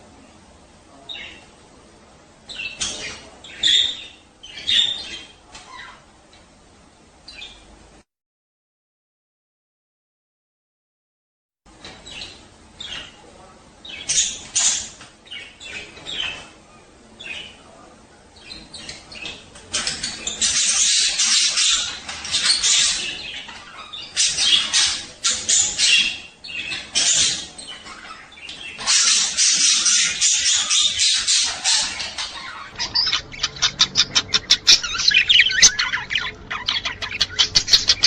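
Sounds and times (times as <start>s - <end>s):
budgerigars chirping and warbling: 1.0s - 1.5s, 2.5s - 6.1s, 7.3s - 7.7s, 11.8s - 17.8s, 18.4s - 38.0s.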